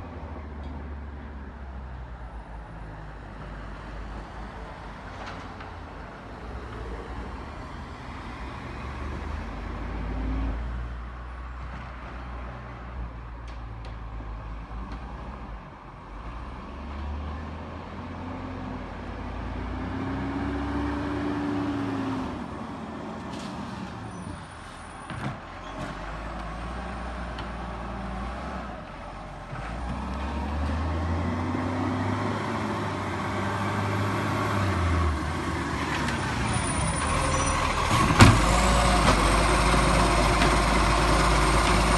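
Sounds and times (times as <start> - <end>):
garbage truck engine revving: 29.5 - 41.9.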